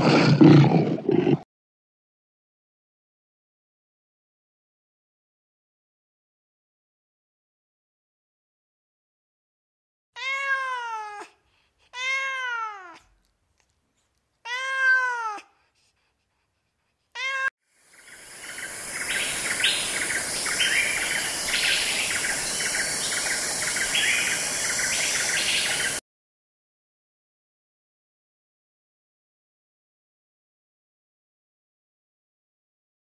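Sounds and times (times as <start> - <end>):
cat meowing: 10.2 - 11.3, 12.0 - 13.1, 14.4 - 15.5, 17.2 - 17.5
high chirping with hiss: 17.8 - 26.0.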